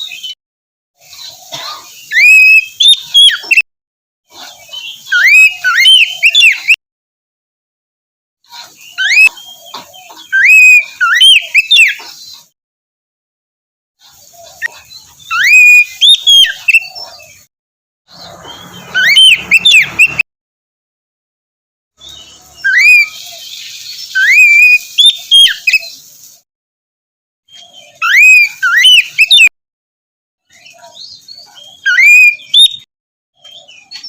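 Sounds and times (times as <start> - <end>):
bird singing whistled phrases: 2.0 - 3.6, 4.8 - 6.8, 8.9 - 9.4, 10.2 - 12.0, 14.6 - 17.2, 18.2 - 20.2, 22.6 - 26.0, 27.5 - 29.5, 30.6 - 32.8.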